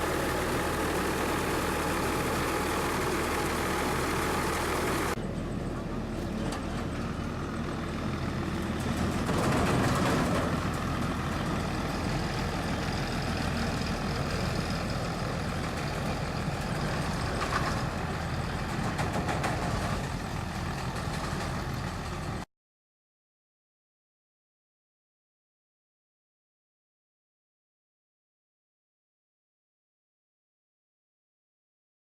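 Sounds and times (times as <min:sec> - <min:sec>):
combine harvester engine running: 0:00.0 - 0:22.4.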